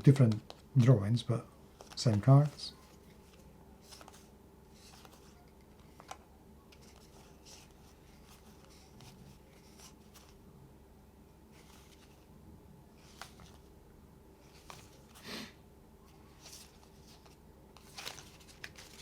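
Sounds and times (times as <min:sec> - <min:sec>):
cards rustling and ticking: 0:00.0 - 0:01.0, 0:01.7 - 0:10.4, 0:11.5 - 0:12.3, 0:13.0 - 0:13.7, 0:14.4 - 0:15.3, 0:16.0 - 0:19.0.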